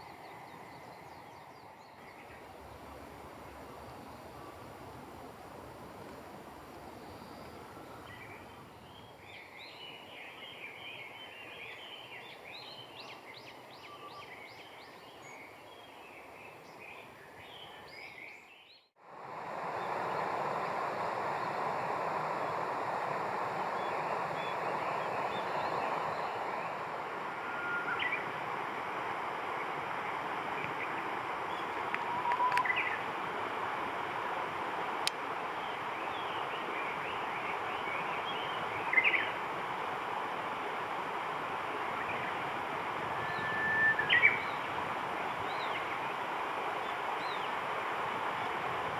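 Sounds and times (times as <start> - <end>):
faint hiss: 0.0 - 18.4, 19.0 - 48.9
steady rushing noise: 19.0 - 48.9.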